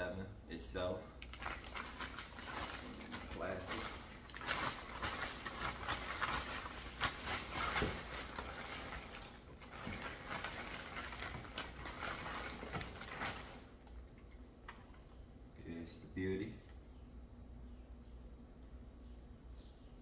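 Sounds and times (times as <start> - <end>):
plastic wrapping crinkling: 1.2 - 13.9.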